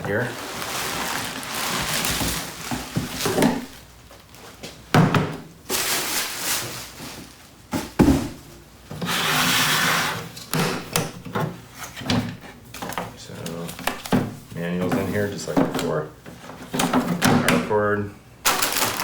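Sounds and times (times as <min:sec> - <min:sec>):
packing rustling: 0:00.0 - 0:04.8, 0:05.7 - 0:07.9, 0:18.4 - 0:19.0.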